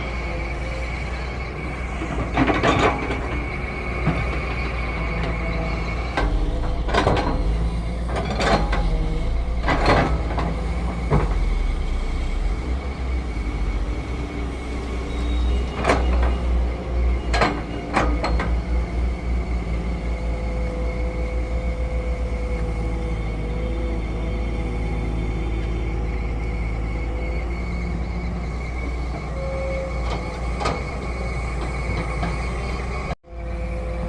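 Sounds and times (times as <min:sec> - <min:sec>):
heavy diesel machinery running: 0:00.0 - 0:34.0.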